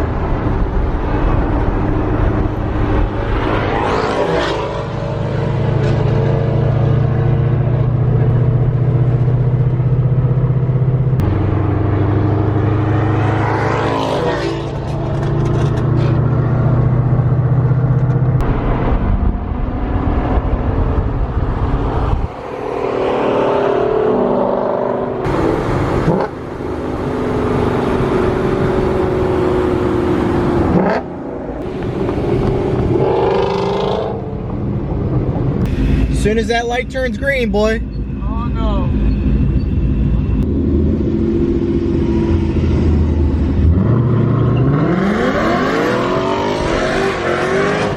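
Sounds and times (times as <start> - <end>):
car engine accelerating hard: 40.2 - 47.9.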